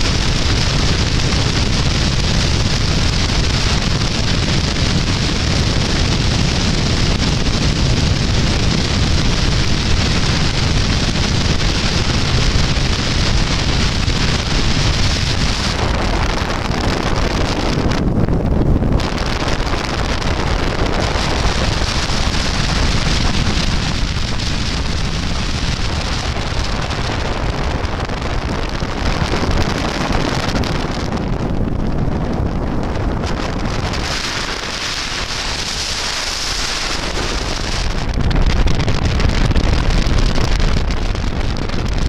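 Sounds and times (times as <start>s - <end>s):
wind noise on microphone: 0.0s - 42.0s
rushing water: 19.0s - 31.1s, 33.3s - 41.0s.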